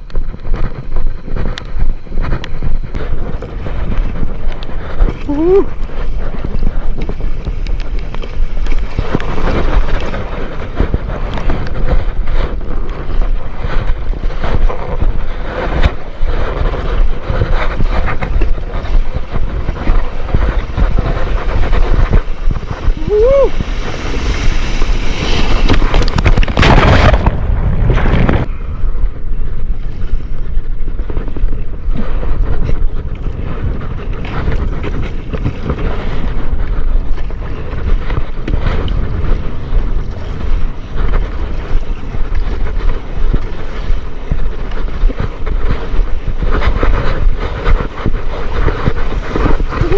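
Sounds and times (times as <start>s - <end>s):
wind buffeting microphone: 0.0s - 49.9s
water rushing and splashing: 3.2s - 28.4s.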